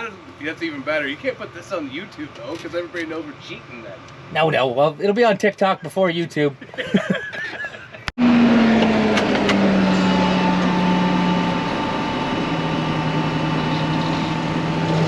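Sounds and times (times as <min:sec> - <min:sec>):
steady whine: 0:00.0 - 0:15.0
vehicle engine running: 0:00.0 - 0:15.0.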